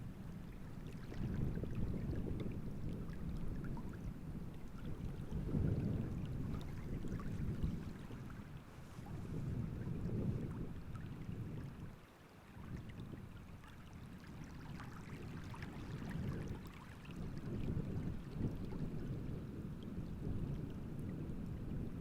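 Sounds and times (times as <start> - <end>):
wind rumbling on microphone: 0.0 - 22.0
small waves splashing: 0.2 - 19.0.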